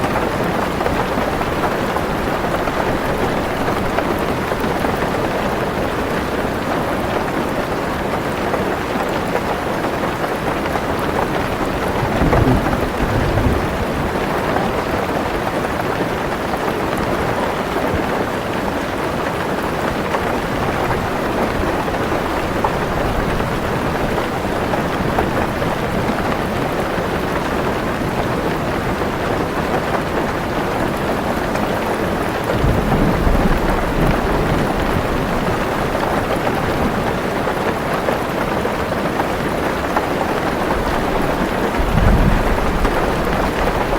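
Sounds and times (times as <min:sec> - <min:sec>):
heavy rain on a car roof: 0:00.0 - 0:43.9
thunder rumbling: 0:11.3 - 0:15.2, 0:32.5 - 0:37.4, 0:40.4 - 0:43.9.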